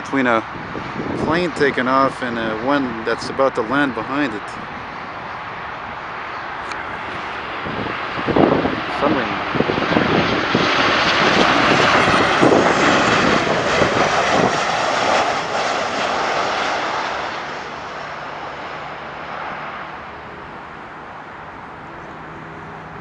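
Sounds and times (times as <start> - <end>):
airliner engines passing overhead: 0.0 - 23.0
falling engine whine: 0.0 - 23.0.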